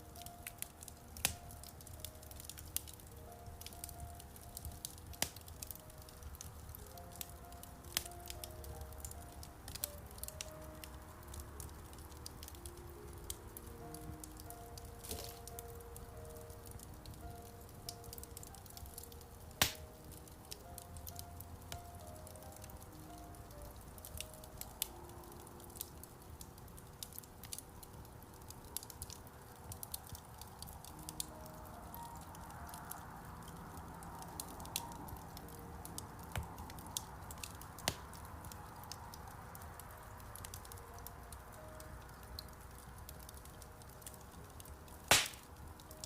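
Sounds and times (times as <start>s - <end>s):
soft slow piano music: 0.0s - 46.0s
wood fire crackling: 0.0s - 46.0s
fire pops: 4.6s - 7.3s, 15.0s - 15.7s, 17.9s - 20.8s, 34.4s - 39.2s, 43.3s - 46.0s.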